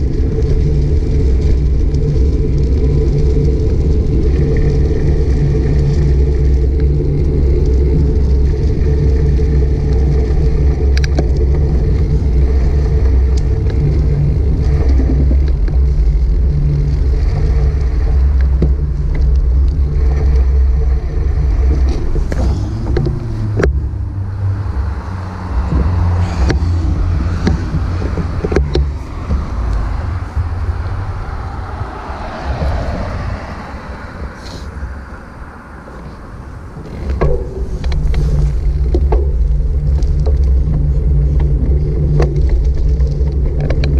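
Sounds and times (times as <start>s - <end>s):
bicycle clicks and rattles: 0.0s - 20.6s, 36.8s - 43.9s
wind and road rumble: 0.0s - 43.9s.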